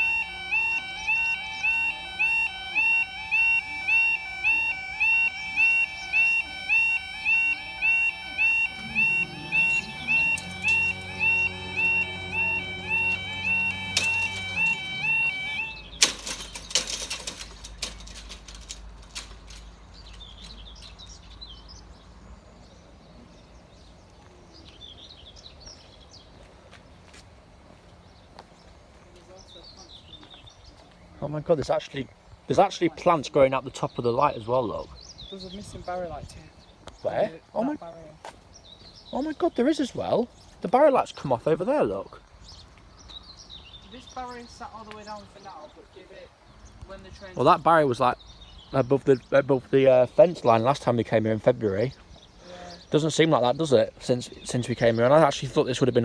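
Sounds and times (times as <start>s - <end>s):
level crossing two-tone alarm: 0.0s - 20.6s
small birds chirping: 0.0s - 56.0s
sharp clicks and knocks: 13.0s - 21.1s.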